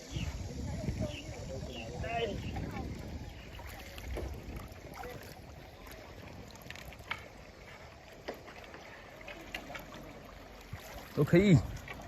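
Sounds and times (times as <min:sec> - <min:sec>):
wind rumble on microphone: 0:00.0 - 0:07.3
water splashing and lapping: 0:00.0 - 0:12.0.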